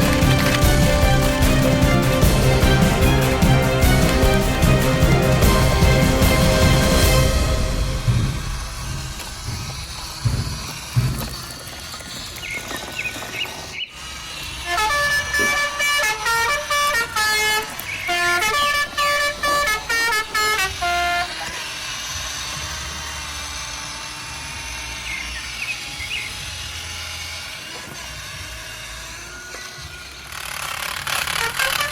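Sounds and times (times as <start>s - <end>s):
vehicle horn playing a tune: 0.0s - 9.2s, 14.6s - 21.7s, 31.0s - 31.9s
steady engine hum: 0.0s - 31.9s.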